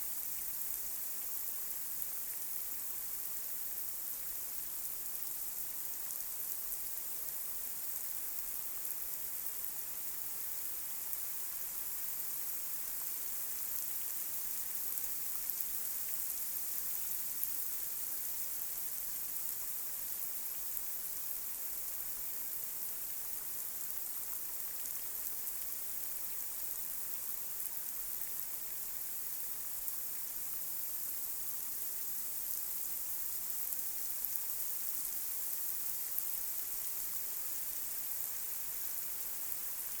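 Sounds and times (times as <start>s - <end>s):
light rain hissing: 0.0s - 40.0s.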